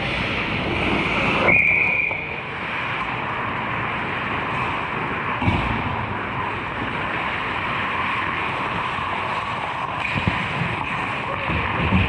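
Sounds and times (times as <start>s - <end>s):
skates scraping ice: 0.0s - 2.9s, 6.8s - 12.0s.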